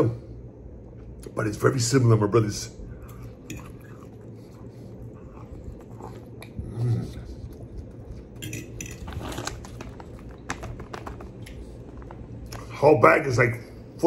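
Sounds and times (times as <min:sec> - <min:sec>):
man chewing food: 0:02.9 - 0:12.7.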